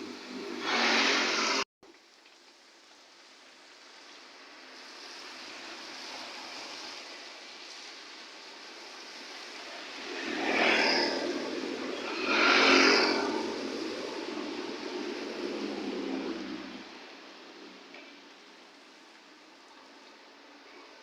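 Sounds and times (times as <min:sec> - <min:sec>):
rushing noise: 0:00.0 - 0:01.7, 0:08.4 - 0:19.1
rain falling: 0:01.8 - 0:21.0.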